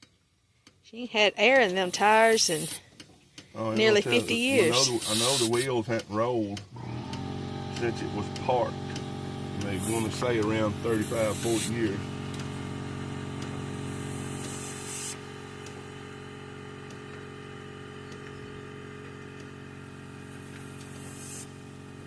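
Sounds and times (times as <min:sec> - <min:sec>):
steady motor hum: 0:01.4 - 0:22.0
compressed air hissing into tire: 0:01.6 - 0:02.9, 0:03.9 - 0:05.8, 0:09.6 - 0:15.9, 0:20.1 - 0:22.0.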